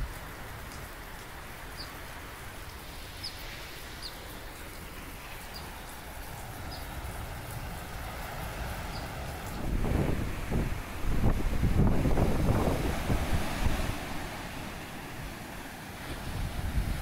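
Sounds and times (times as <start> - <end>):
small bird chirping: 4.0 - 4.3, 6.7 - 6.9.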